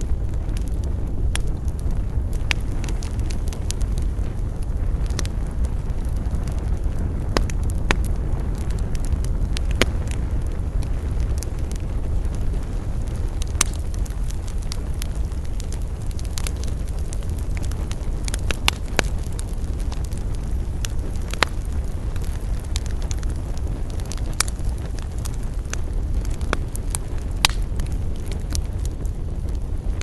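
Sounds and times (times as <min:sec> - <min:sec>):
burning wood crackling and popping: 0:00.0 - 0:30.0
campfire rumbling: 0:00.0 - 0:30.0.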